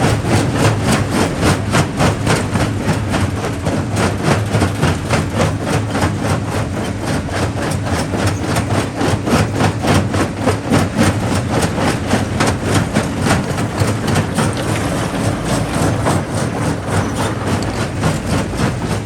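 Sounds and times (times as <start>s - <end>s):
rock crusher knocking: 9.7s - 19.0s.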